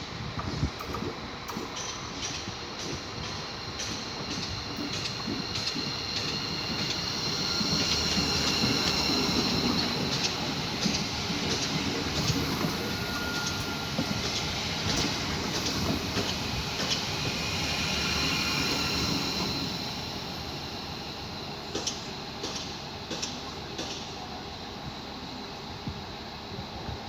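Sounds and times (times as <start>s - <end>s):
train passing on tracks: 0.0s - 26.5s
wheel squeal on rails: 6.2s - 22.1s.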